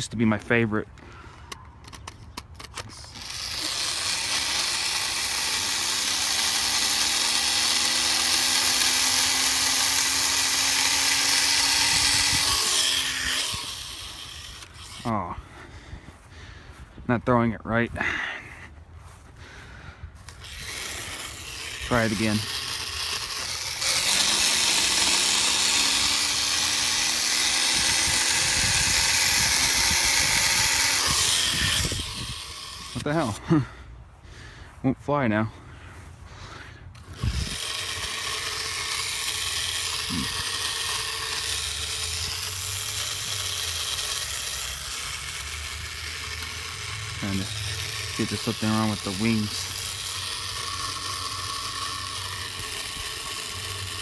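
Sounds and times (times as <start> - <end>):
small electric motor buzzing whine: 0.0 - 17.6, 18.7 - 33.7, 35.9 - 54.0
wind buffeting microphone: 37.1 - 37.6.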